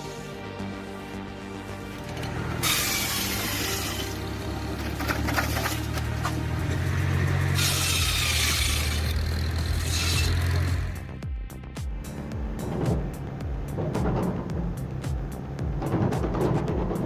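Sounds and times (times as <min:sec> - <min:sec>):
tractor engine running under load: 0:01.5 - 0:11.1
saw cutting through wood: 0:02.0 - 0:11.1.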